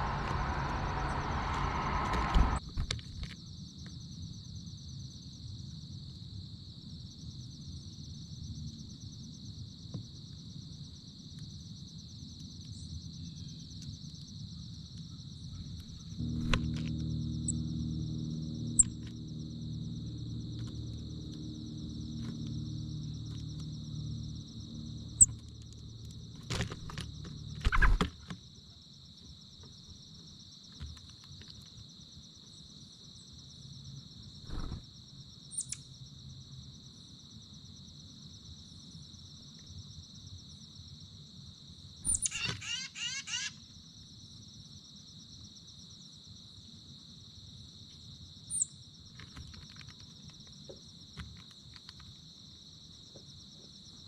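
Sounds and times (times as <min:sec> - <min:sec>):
insects chirping: 0:00.0 - 0:54.0
bird chirps: 0:35.5 - 0:35.8, 0:42.1 - 0:43.5
rapid bird song: 0:35.5 - 0:35.8, 0:42.1 - 0:43.5.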